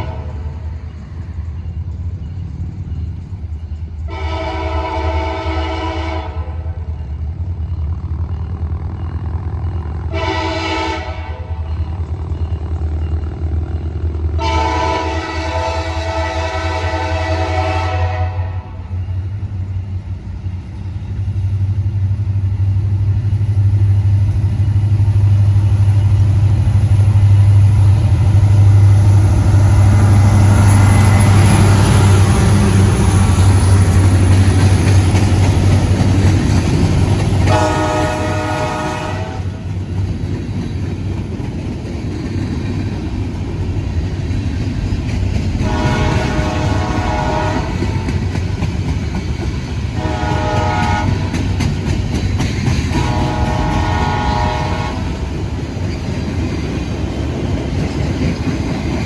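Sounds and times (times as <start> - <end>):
train rumble: 0.0 - 59.0
locomotive air horn blasts: 4.1 - 6.7, 10.1 - 11.5, 14.4 - 18.8, 37.5 - 39.6, 45.6 - 47.9, 50.0 - 51.3, 53.0 - 55.1.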